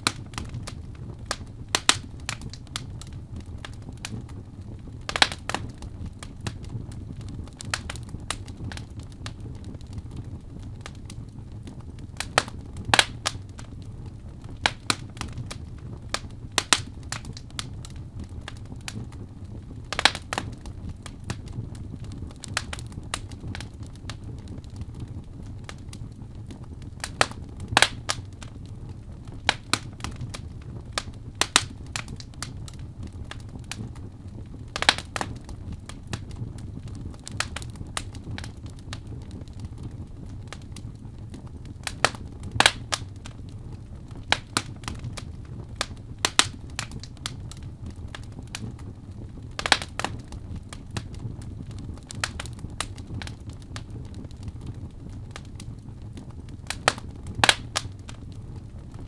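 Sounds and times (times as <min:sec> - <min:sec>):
fire crackling and popping: 0:00.0 - 0:59.0.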